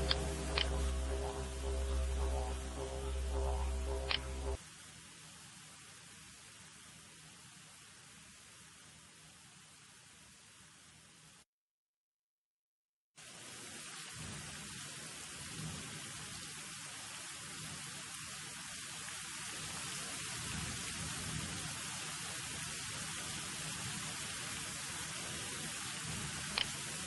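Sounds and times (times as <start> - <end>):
low rumble: 0.0 - 4.6
rain-like hissing: 0.0 - 11.4, 13.2 - 27.0.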